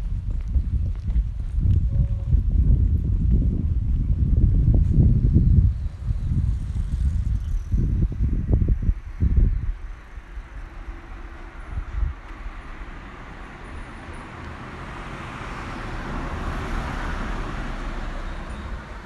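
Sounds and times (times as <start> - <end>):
car passing: 5.2 - 19.0.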